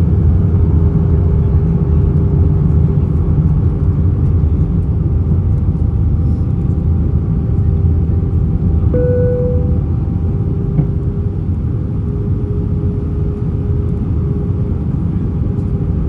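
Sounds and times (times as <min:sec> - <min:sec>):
airplane engines rumbling: 0:00.0 - 0:16.0
brief higher tone: 0:08.9 - 0:10.2.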